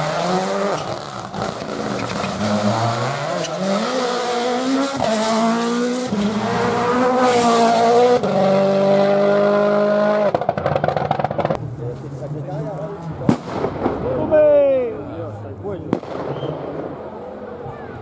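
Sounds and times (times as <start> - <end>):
rally car engine accelerating: 0.0 - 11.6.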